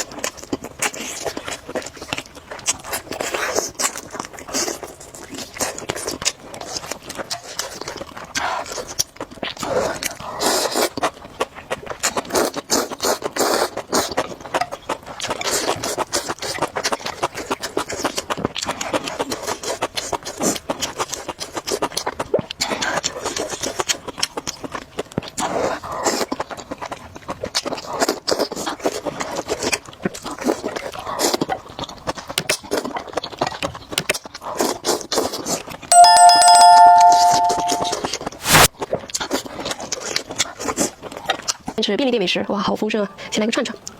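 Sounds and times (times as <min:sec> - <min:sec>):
crunching and chewing food: 0:00.0 - 0:35.4
ringing two-note chime: 0:35.9 - 0:38.7.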